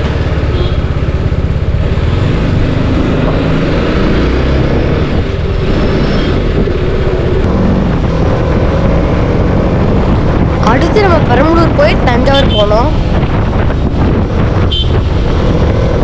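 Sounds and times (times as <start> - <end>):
motorcycle engine running: 0.0 - 3.7
wind rumble on microphone: 0.0 - 16.0.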